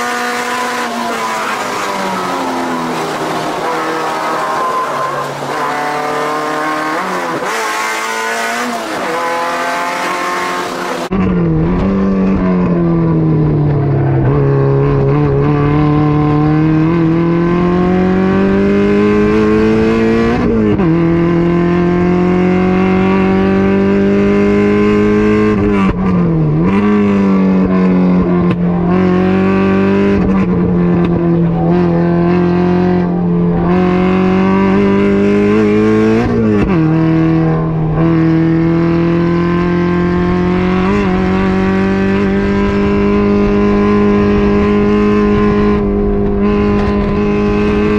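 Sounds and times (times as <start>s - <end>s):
race car engine high revs: 0.0s - 12.2s, 14.2s - 47.9s.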